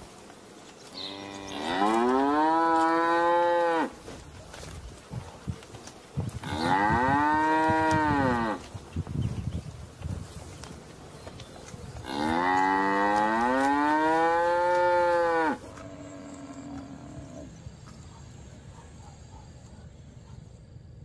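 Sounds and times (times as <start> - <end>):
cattle mooing: 1.0 - 3.9, 6.4 - 8.6, 12.0 - 17.5.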